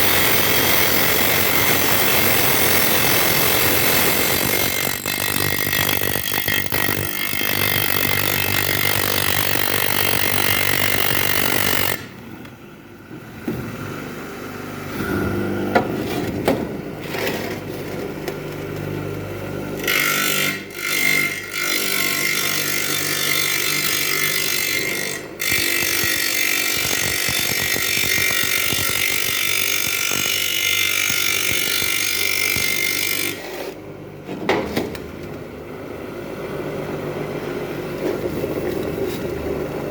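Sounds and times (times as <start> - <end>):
brick grinding: 0.0 - 12.1, 21.6 - 33.8.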